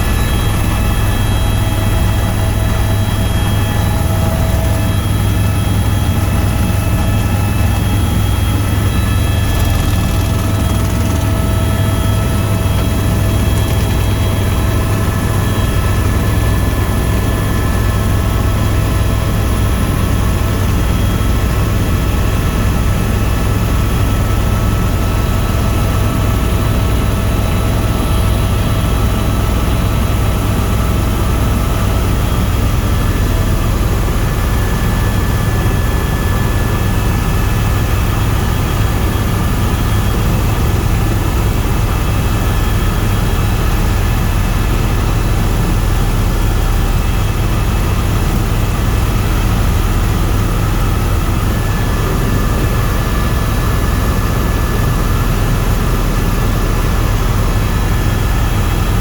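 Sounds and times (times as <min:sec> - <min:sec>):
faint steady whines: 0:00.0 - 0:59.0
helicopter engine and rotors: 0:00.0 - 0:59.0.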